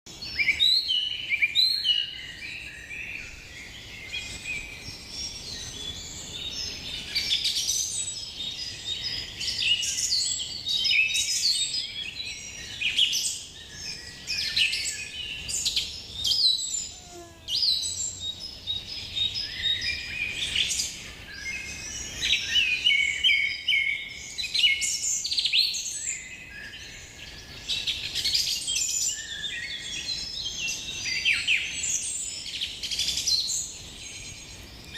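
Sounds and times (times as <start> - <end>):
birds chirping and trilling: 0.1 - 34.9.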